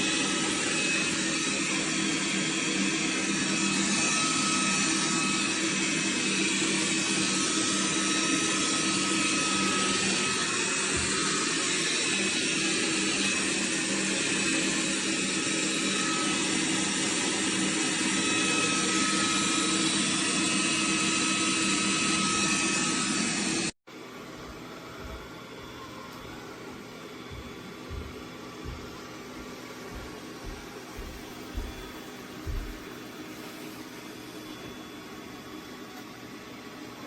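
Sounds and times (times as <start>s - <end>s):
robot vacuum motor whining: 0.0s - 23.7s, 30.5s - 34.0s.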